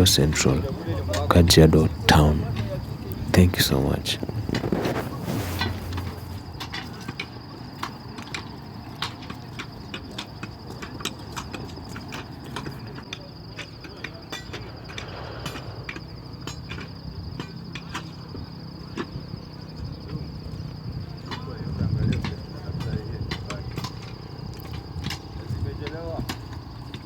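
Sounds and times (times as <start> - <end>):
insect trilling: 13.0 - 18.8
low rumble: 14.3 - 17.4.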